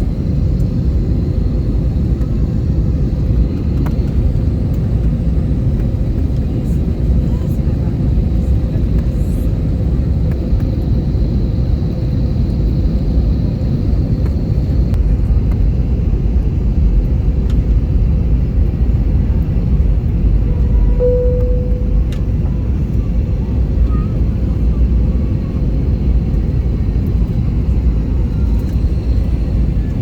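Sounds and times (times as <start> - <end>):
airplane low rumble: 0.0 - 30.0
short clear tone: 21.0 - 22.4
faint steady whine: 21.0 - 30.0.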